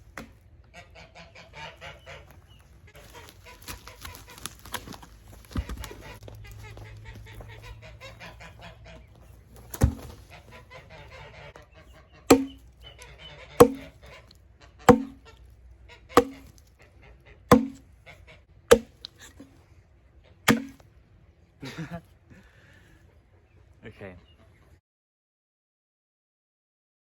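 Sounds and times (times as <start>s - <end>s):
axe knocks with ringing tone: 12.3s - 12.6s, 13.6s - 13.9s, 14.9s - 15.2s, 16.2s - 16.5s, 17.5s - 17.8s, 20.5s - 20.8s.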